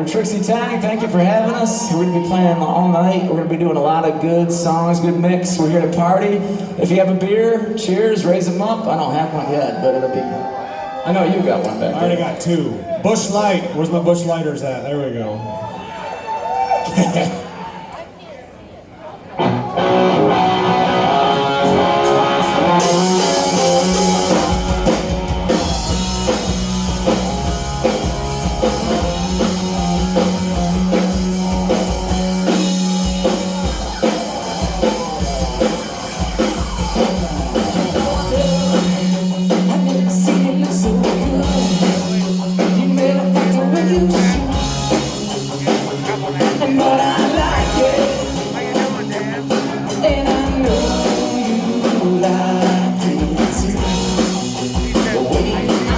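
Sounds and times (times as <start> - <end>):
live rock band playing: 0.0 - 14.7, 19.2 - 55.9.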